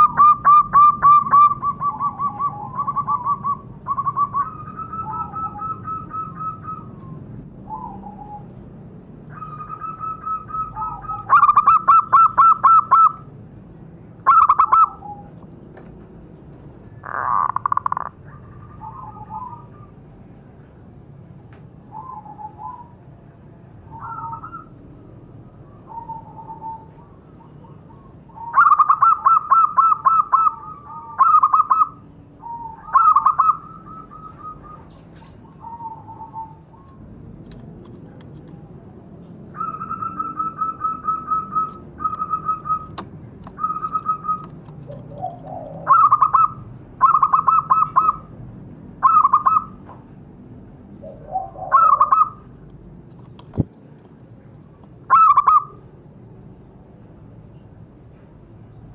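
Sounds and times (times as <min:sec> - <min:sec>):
doves cooing: 0:00.0 - 0:08.6, 0:09.3 - 0:13.3, 0:16.8 - 0:20.0, 0:23.8 - 0:38.8, 0:39.4 - 0:48.4, 0:49.0 - 0:49.9, 0:50.9 - 0:52.6, 0:55.0 - 0:55.9.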